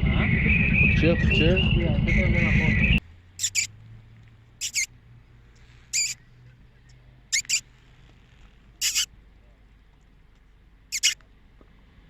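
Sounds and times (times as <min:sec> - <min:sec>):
high-pitched animal chirps: 0:03.4 - 0:03.7, 0:04.6 - 0:04.9, 0:05.9 - 0:06.2, 0:07.3 - 0:07.7, 0:08.8 - 0:09.1, 0:10.9 - 0:11.2.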